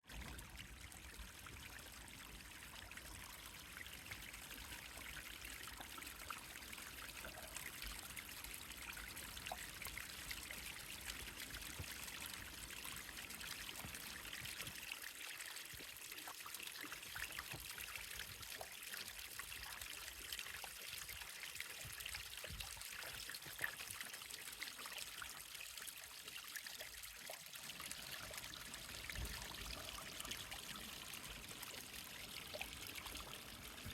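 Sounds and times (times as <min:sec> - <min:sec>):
water trickling: 0:00.1 - 0:33.9.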